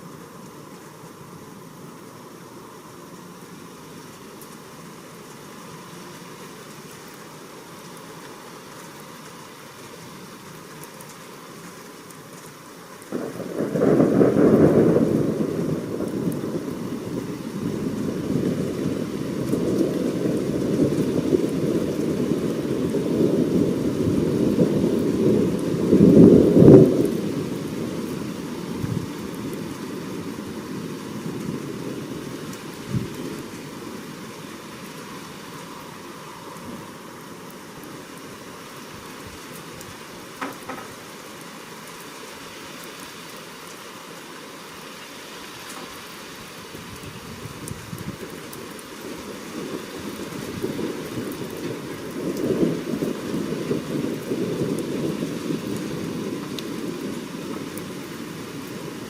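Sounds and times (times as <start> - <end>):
rain hiss: 0.0 - 59.0
rolling thunder rumbling: 13.1 - 34.4, 49.0 - 59.0.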